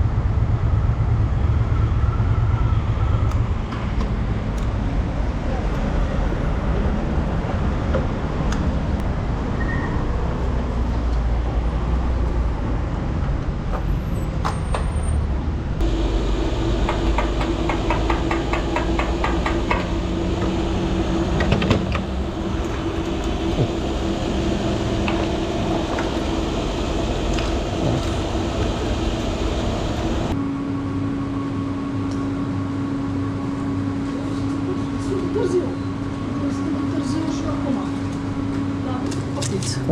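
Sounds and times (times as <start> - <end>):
motorcycle engine running: 15.8 - 30.4.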